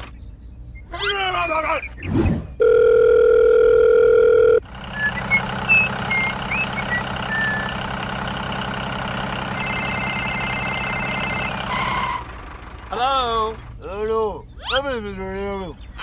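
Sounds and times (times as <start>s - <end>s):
tractor engine running: 3.6s - 14.6s.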